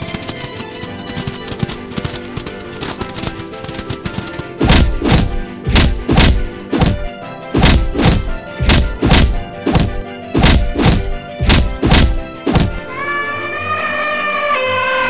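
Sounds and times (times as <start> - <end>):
background music: 0.0 - 15.0
heavy thudding impacts: 4.6 - 12.8
rising brass-like melody: 12.2 - 15.0.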